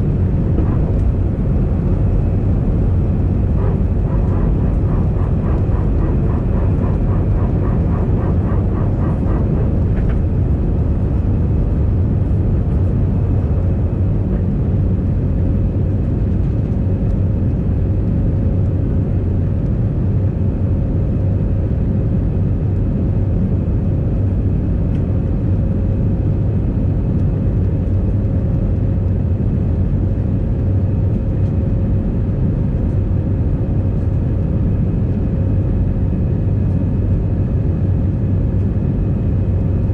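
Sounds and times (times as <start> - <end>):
airplane cabin roar: 0.0 - 39.9
faint rapid pulsing: 2.8 - 11.0.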